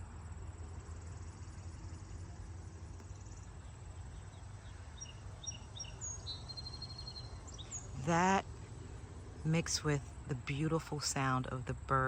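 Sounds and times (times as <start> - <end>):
crickets chirring: 0.0 - 12.0
bird chirps: 3.0 - 8.4.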